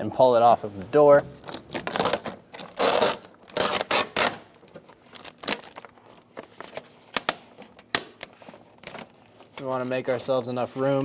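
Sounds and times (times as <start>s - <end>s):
plastic crinkling: 1.3s - 11.0s
plastic sheet tearing off adhesive: 1.4s - 5.9s.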